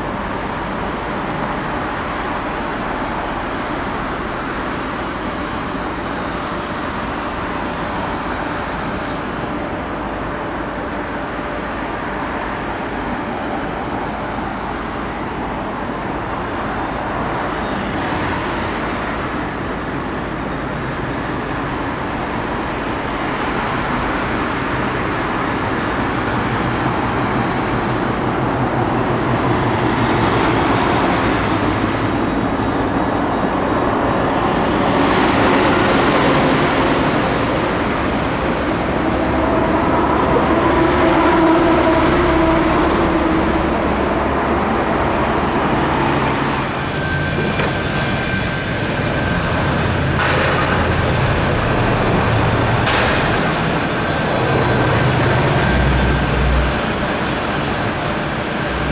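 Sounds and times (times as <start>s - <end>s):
road traffic: 0.0s - 58.9s
vehicles passing: 33.7s - 58.9s.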